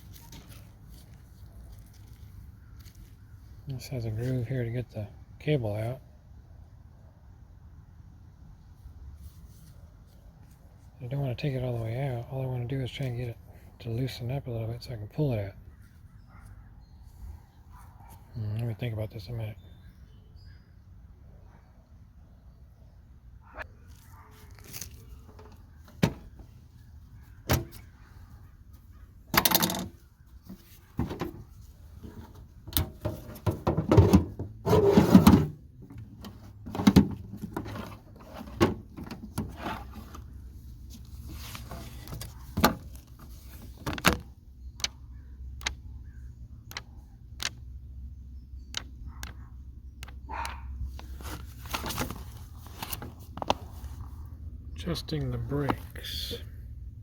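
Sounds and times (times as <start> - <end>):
metal parts clattering and scraping: 29.3 - 40.3.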